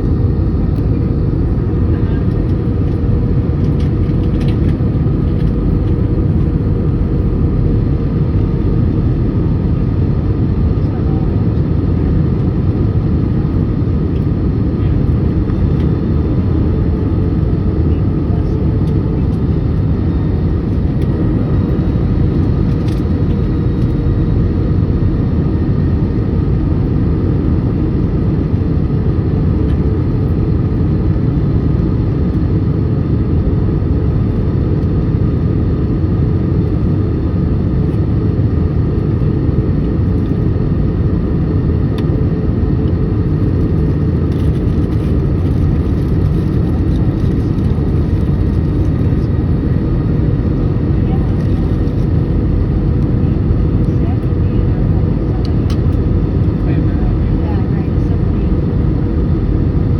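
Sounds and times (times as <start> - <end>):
airliner engines rumbling in cabin: 0.0 - 59.9.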